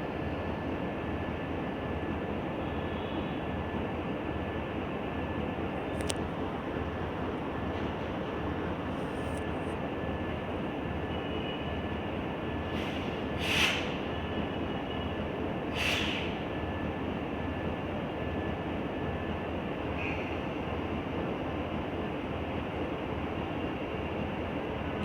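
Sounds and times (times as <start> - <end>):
diesel train rumbling: 0.0 - 25.0
short hisses: 12.8 - 14.0, 15.8 - 16.4.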